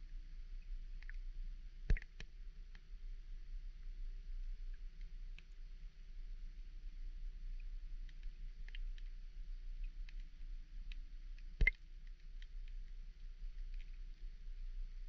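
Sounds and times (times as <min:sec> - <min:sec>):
sharp underwater clicks: 0:00.9 - 0:02.9, 0:04.9 - 0:05.6, 0:07.6 - 0:09.2, 0:09.8 - 0:14.3.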